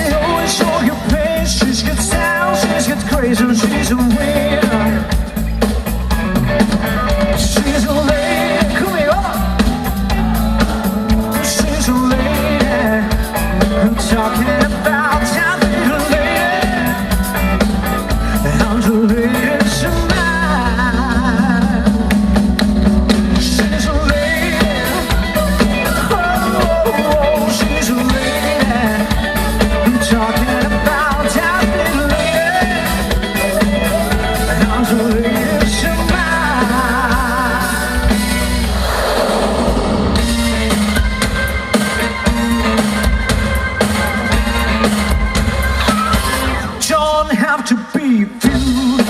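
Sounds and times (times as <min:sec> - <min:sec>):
drum kit strokes: 0:00.0 - 0:47.2
bass and chords: 0:00.0 - 0:47.5, 0:48.4 - 0:49.0
live band playing: 0:00.0 - 0:49.0.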